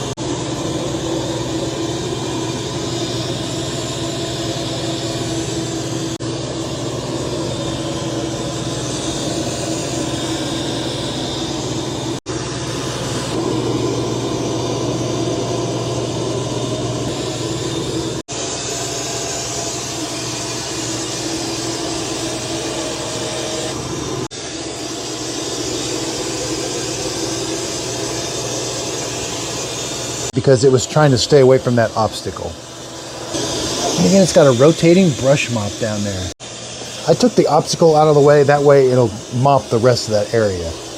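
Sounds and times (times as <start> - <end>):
robot vacuum whirring: 17.0 - 40.9.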